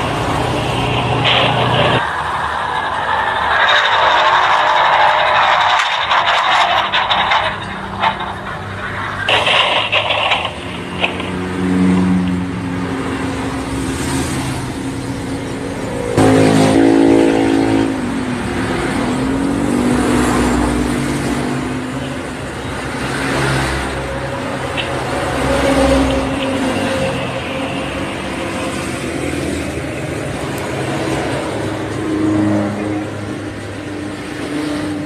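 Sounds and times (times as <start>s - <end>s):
motorcycles revving and passing: 15.9s - 35.0s.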